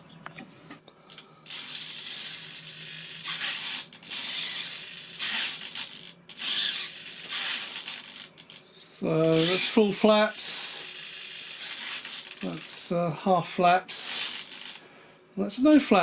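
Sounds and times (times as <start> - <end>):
servos buzzing: 1.1 - 12.9, 13.9 - 14.9.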